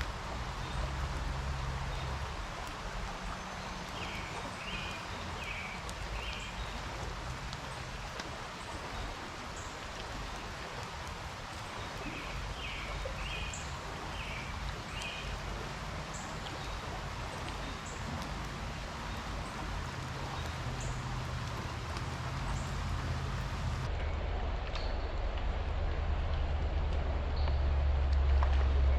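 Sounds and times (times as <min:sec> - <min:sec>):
low rumble: 0:00.0 - 0:04.6, 0:14.6 - 0:28.9
distant road traffic: 0:00.0 - 0:09.0, 0:12.6 - 0:24.3
creek water flowing: 0:00.0 - 0:28.9.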